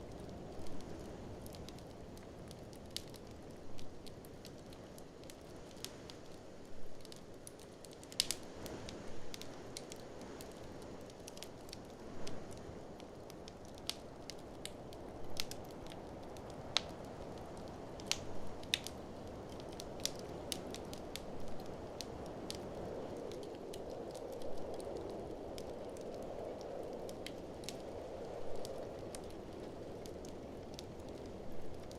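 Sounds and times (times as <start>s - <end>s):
fireplace fire crackling: 0.0s - 31.9s.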